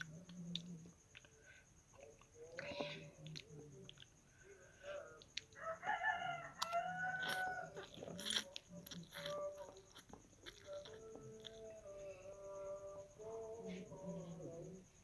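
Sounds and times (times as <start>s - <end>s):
rooster crowing: 5.0s - 8.2s.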